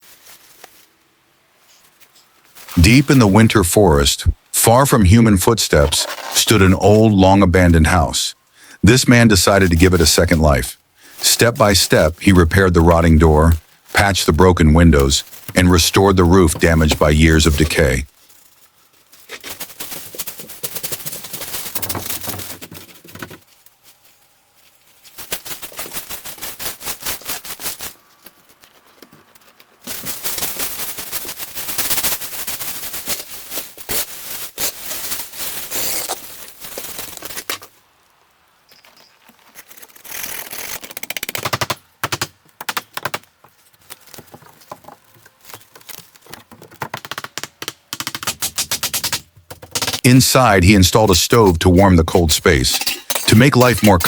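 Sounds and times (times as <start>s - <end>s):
sharp clicks and knocks on wood: 46.3s - 50.0s.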